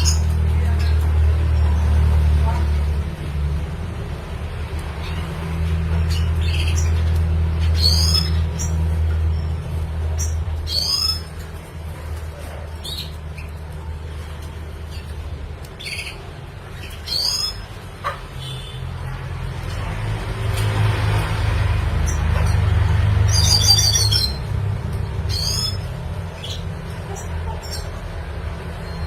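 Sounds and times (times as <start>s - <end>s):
bird chirping: 5.0s - 11.4s, 14.9s - 18.8s, 22.0s - 24.6s, 25.2s - 28.1s.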